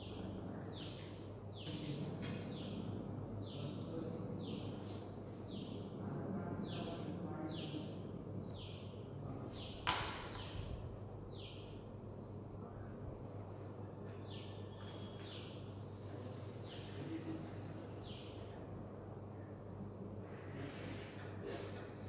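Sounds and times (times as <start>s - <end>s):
chalk tapping blackboard: 0.1s - 2.6s, 14.9s - 18.2s.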